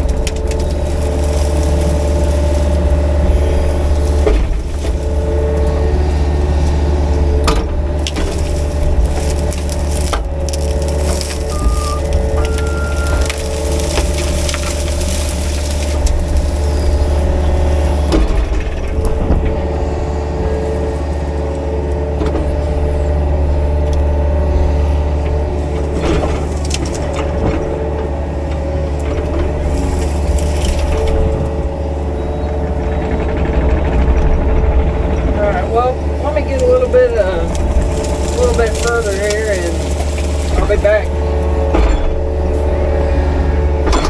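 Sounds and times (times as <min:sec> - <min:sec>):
rake tearing through brush: 0:00.0 - 0:05.4, 0:07.8 - 0:18.3, 0:29.4 - 0:31.9, 0:35.5 - 0:41.5
diesel engine running: 0:00.0 - 0:44.0
wood cracking and snapping: 0:00.0 - 0:44.0.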